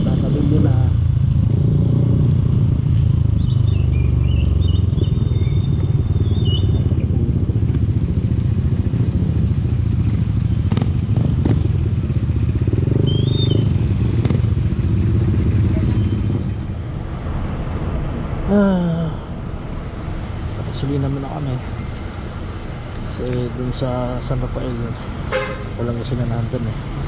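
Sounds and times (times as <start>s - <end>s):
motorcycle engine running: 0.0s - 16.9s
road and wind noise: 0.0s - 27.0s.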